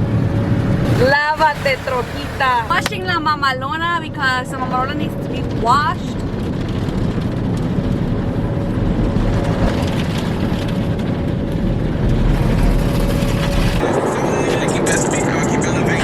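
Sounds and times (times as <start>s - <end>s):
water spray rushing: 0.8s - 3.0s.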